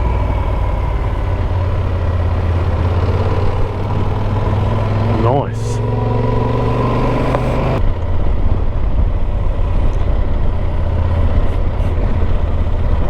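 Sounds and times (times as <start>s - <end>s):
motorcycle engine running: 0.0s - 13.0s
road rumble: 0.0s - 13.0s
wind noise: 5.8s - 13.0s.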